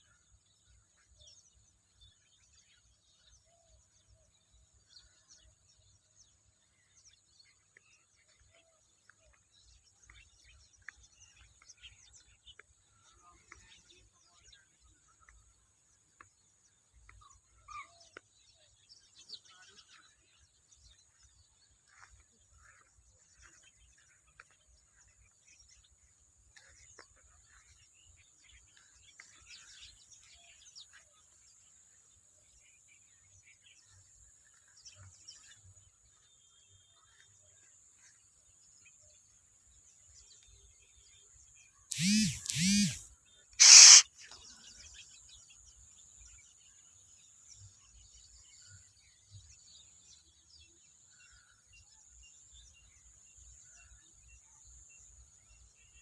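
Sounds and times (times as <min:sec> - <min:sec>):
wetland birds calling: 0:41.9 - 0:45.3.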